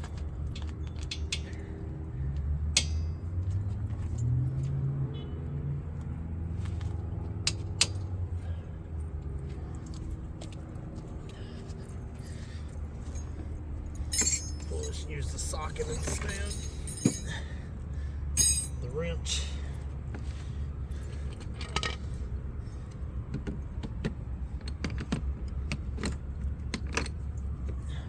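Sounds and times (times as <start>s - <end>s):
metallic clinks of tools: 11.0s - 17.6s, 18.4s - 19.5s.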